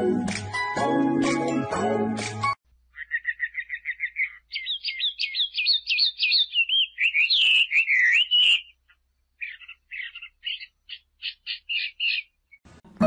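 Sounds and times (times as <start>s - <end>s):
small bird chirping and warbling: 2.9s - 12.6s.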